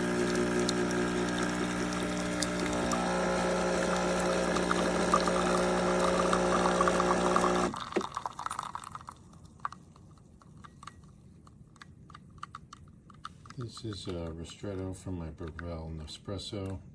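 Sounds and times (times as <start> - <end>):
espresso pump humming: 0.0 - 8.9
espresso pouring into cup: 0.0 - 9.7.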